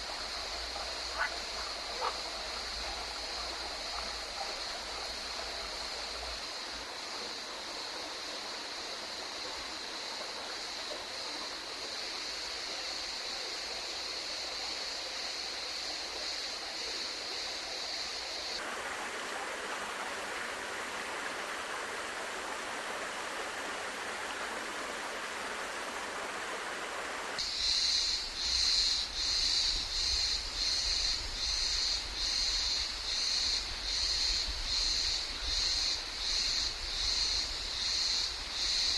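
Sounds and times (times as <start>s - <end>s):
stream water rushing over rocks: 18.6s - 27.5s.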